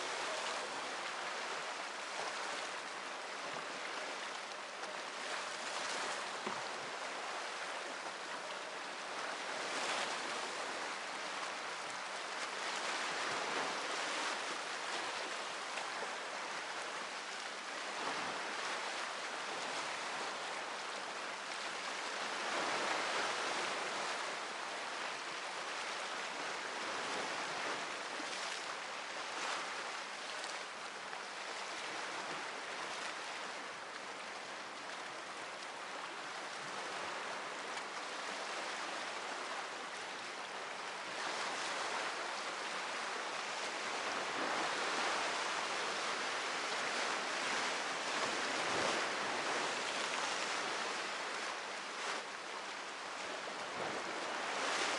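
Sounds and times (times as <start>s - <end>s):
waves breaking on shore: 0.0s - 54.9s.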